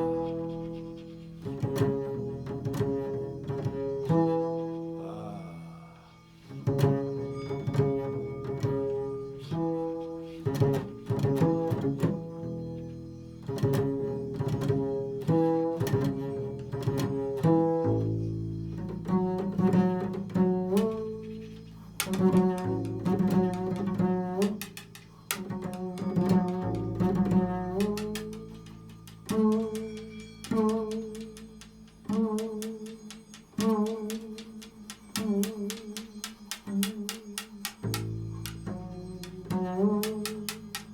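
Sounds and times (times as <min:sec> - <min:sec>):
plucked string instrument: 0:00.0 - 0:40.9
held low note: 0:04.8 - 0:06.7.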